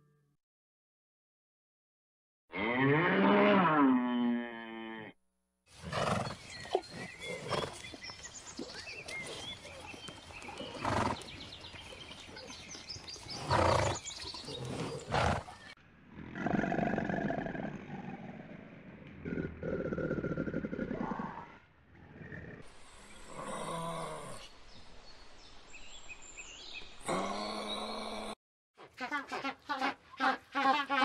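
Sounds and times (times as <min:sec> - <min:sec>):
cow mooing: 0:02.5 - 0:05.2.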